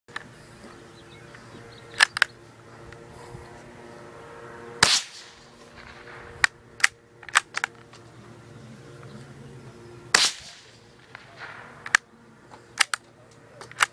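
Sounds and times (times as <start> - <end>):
rifle shot with echo: 4.8 - 6.6, 10.1 - 12.1.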